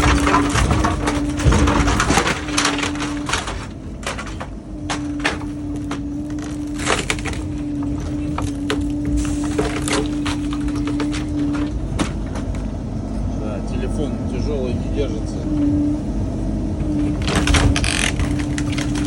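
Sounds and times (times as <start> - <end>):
material cracking and crunching: 0.0 - 12.8, 17.1 - 19.0
excavator hum: 0.0 - 19.0.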